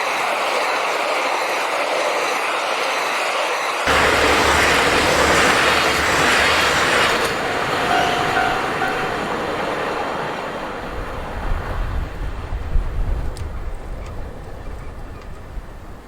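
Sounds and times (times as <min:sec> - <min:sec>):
diesel train passing: 0:00.0 - 0:16.0
wheel and rail noise: 0:00.0 - 0:16.0.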